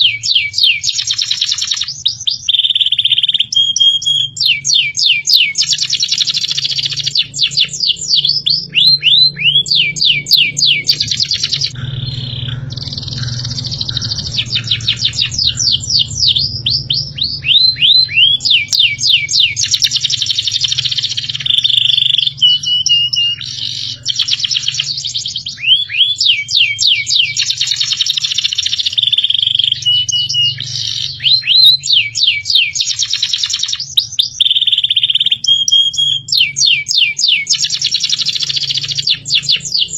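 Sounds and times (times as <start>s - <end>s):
bird whistled notes: 0.0s - 39.9s
songbirds chirping: 0.0s - 39.9s
steady low hum: 6.6s - 25.6s.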